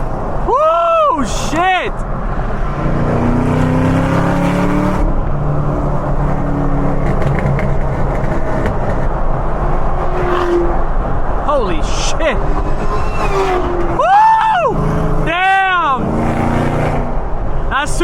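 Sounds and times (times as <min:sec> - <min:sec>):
car engine accelerating hard: 0:02.3 - 0:11.4, 0:12.2 - 0:17.4.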